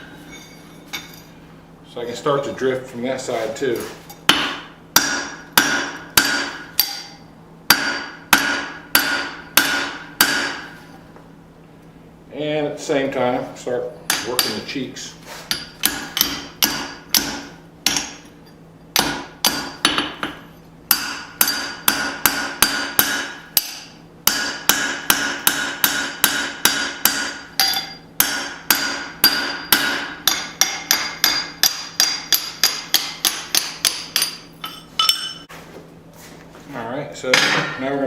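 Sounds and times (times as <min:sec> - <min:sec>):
hammer striking metal on anvil: 0:04.3 - 0:10.8, 0:14.1 - 0:14.8, 0:15.5 - 0:35.5
anvil ringing: 0:20.9 - 0:35.5.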